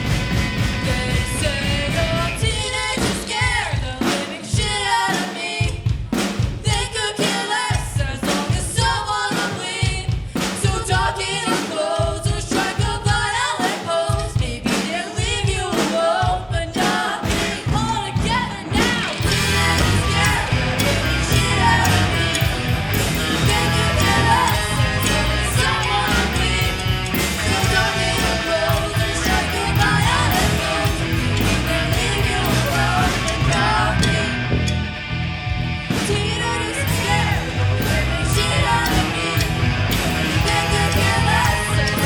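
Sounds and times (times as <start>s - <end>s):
bass: 0.0s - 4.8s, 17.2s - 42.0s
guitars: 0.0s - 5.0s, 16.8s - 42.0s
drum kit: 0.0s - 42.0s
person singing: 15.6s - 34.4s, 36.1s - 42.0s.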